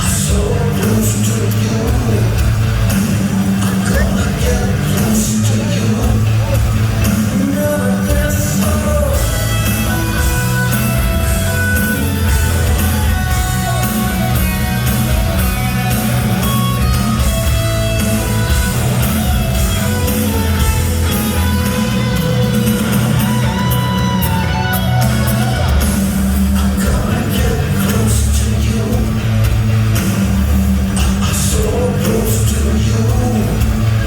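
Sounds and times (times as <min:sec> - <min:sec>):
person singing: 0:00.0 - 0:14.8, 0:26.4 - 0:29.5, 0:31.0 - 0:34.0
bass: 0:00.0 - 0:34.0
drums: 0:00.0 - 0:34.0
electric guitar: 0:00.0 - 0:34.0.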